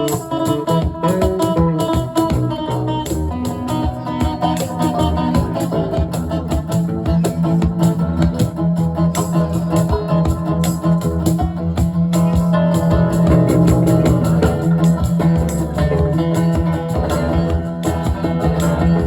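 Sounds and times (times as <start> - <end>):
live band playing: 0.0 - 19.0.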